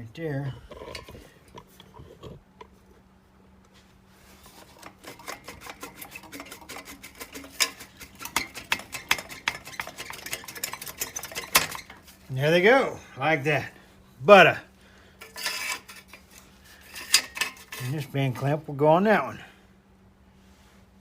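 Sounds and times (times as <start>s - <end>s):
metal pipes clinking and scraping: 0.7s - 1.6s, 4.3s - 12.3s, 15.2s - 18.7s.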